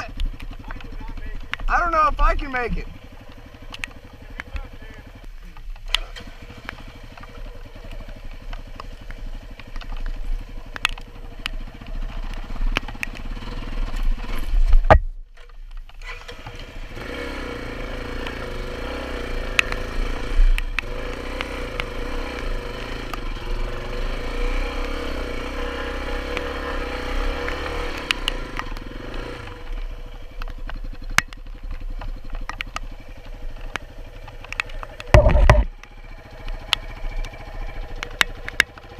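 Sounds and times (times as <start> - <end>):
motorcycle engine revving hard: 5.9 - 14.6, 16.0 - 38.9
clicks and knocks: 33.7 - 35.8.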